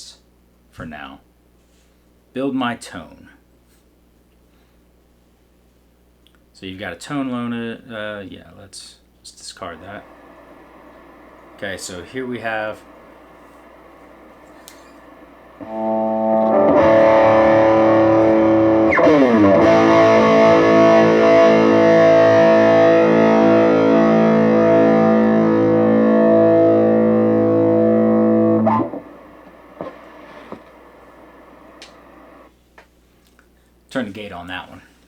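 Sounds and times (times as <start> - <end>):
overdriven electric guitar chords: 10.1 - 32.5.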